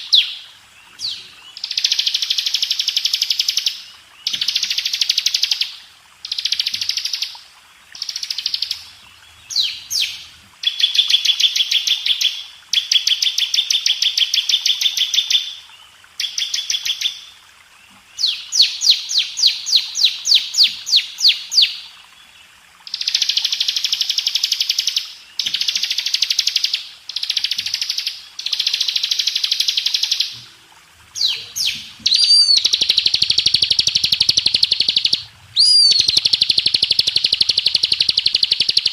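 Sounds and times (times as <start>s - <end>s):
bird singing fast high trills: 31.2s - 38.9s.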